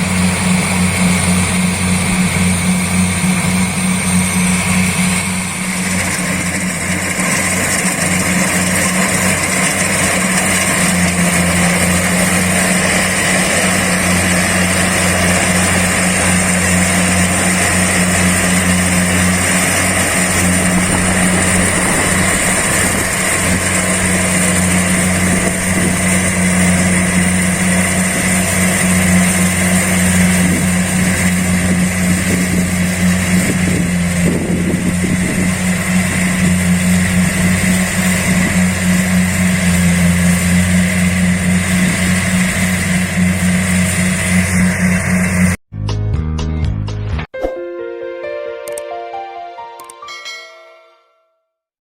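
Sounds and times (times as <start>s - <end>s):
combine harvester engine running: 0.0s - 45.6s.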